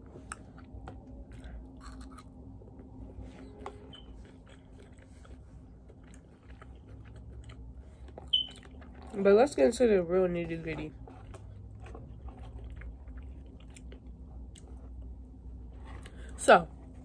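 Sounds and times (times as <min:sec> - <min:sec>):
person chewing with wet mouth clicks: 0:03.9 - 0:09.2.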